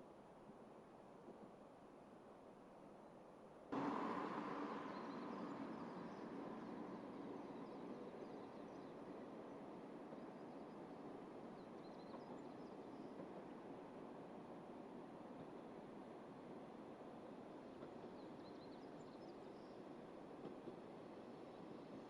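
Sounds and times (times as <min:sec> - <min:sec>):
diesel railcar running: 0:03.8 - 0:22.0.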